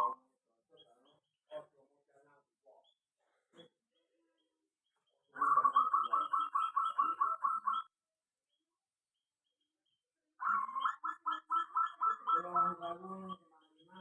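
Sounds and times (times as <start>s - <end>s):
dove cooing: 5.4s - 7.8s, 10.4s - 14.0s.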